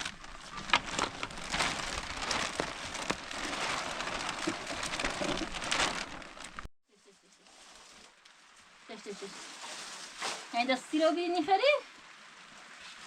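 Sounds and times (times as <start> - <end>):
rain falling with drop ticks: 0.0 - 6.7, 8.0 - 9.1, 10.7 - 13.0.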